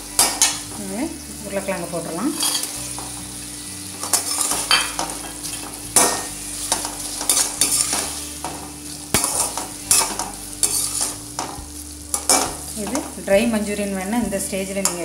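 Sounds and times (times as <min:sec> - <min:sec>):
food sizzling: 0:00.0 - 0:15.0
ladle scraping metal pan: 0:02.3 - 0:03.0, 0:04.0 - 0:08.6, 0:09.2 - 0:11.4.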